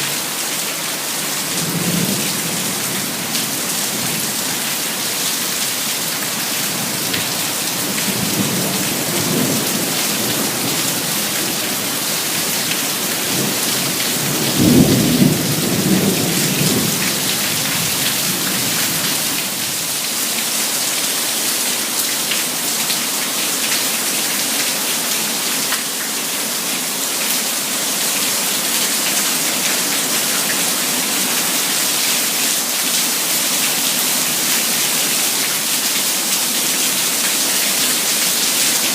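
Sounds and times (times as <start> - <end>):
heavy rain: 0.0 - 38.9
thunder rumbling: 14.2 - 18.2.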